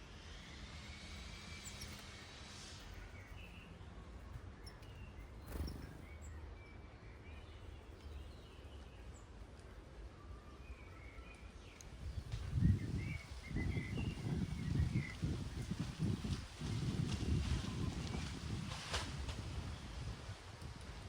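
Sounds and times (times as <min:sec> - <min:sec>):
faint bird chirps: 0:02.9 - 0:09.3, 0:10.0 - 0:15.2.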